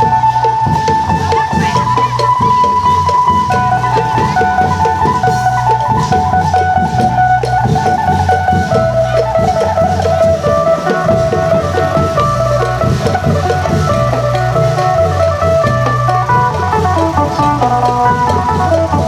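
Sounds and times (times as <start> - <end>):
long drums beating a steady rhythm: 0.0 - 19.0
amplified lute melody: 3.1 - 19.0.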